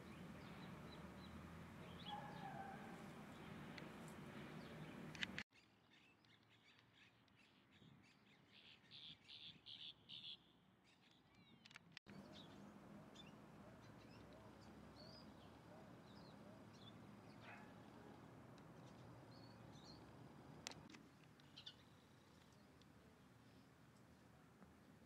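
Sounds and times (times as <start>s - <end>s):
wild birds calling: 0.0s - 5.4s, 12.1s - 22.2s
faint background noise: 0.0s - 25.0s.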